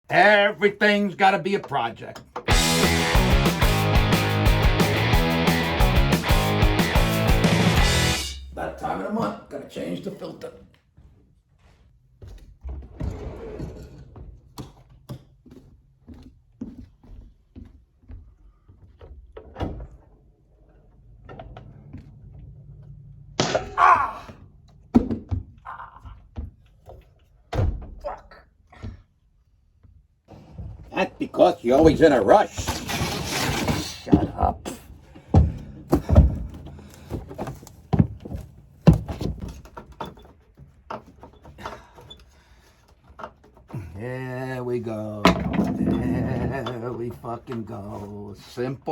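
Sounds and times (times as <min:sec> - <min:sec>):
loud rattling scrape: 0:32.5 - 0:34.1
vent cover knocks and thuds: 0:34.1 - 0:39.8
hard thunk: 0:35.2 - 0:39.6.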